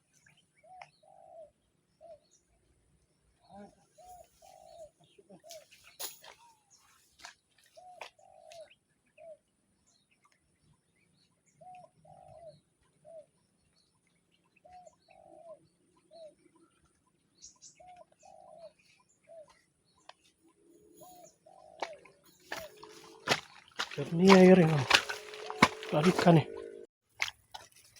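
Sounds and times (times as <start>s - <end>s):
dove cooing: 1.0s - 2.2s, 11.6s - 13.3s, 14.7s - 16.4s, 20.7s - 26.8s.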